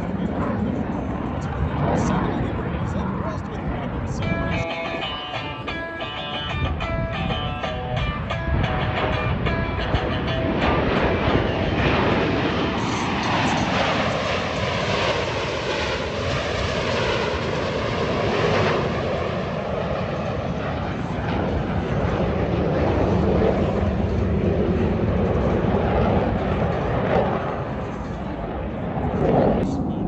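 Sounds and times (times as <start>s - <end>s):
airplane engine flying past: 0.0s - 30.0s.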